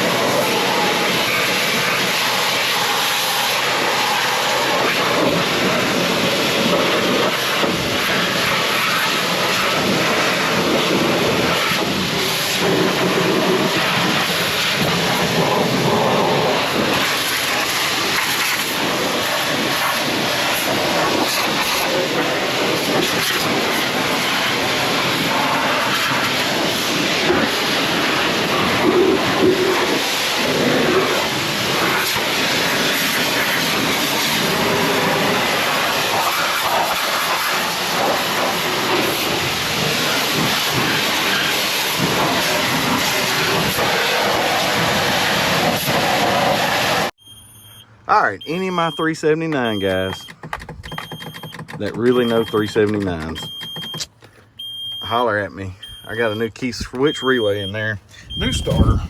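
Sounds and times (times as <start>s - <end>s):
water spray rushing hiss: 0.0s - 47.1s.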